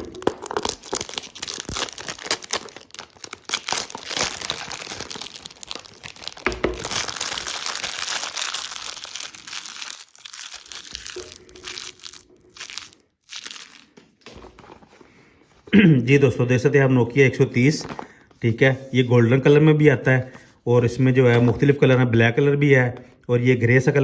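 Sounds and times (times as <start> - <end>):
plastic wrap tearing and crumpling: 0.0 - 15.0.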